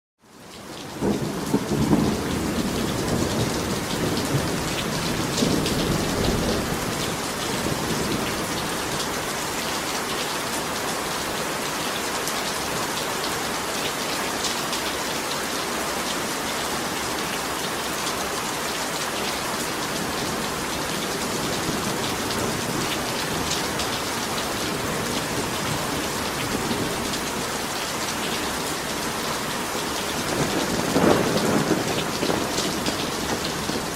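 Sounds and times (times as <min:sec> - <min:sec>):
heavy rain pouring: 0:00.2 - 0:33.9
rolling thunder: 0:00.9 - 0:09.0, 0:29.3 - 0:33.9.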